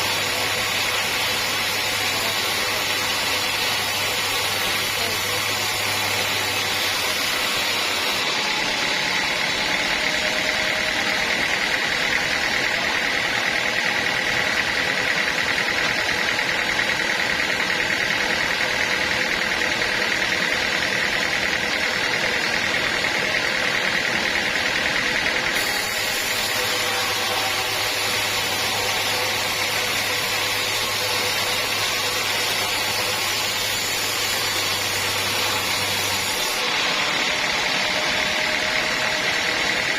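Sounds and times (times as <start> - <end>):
high machine whine: 0.0 - 39.9
sawmill machinery drone: 0.0 - 39.9.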